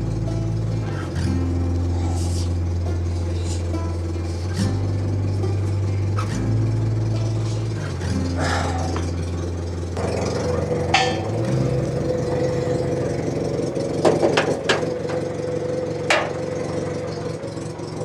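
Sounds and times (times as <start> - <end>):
steady hum: 0.0 - 17.6
sharp knocks: 14.0 - 15.3, 16.1 - 16.4.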